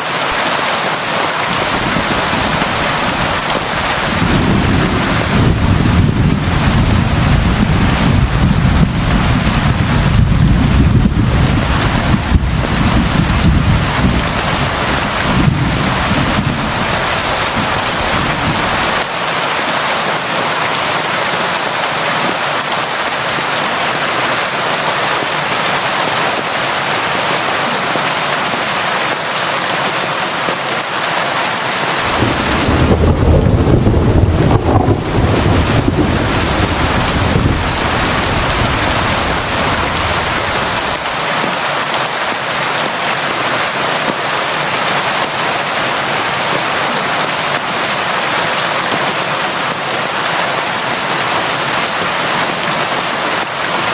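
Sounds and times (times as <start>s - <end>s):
heavy rain falling: 0.0s - 53.9s
low thunder rumble: 1.6s - 19.0s, 32.0s - 41.1s.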